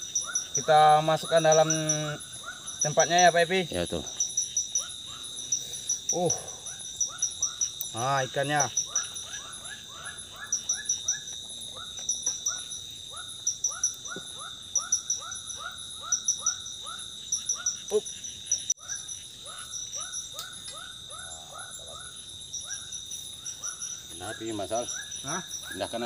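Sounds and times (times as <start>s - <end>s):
insects droning: 0.0s - 26.0s
quick insect chirps: 0.0s - 26.0s.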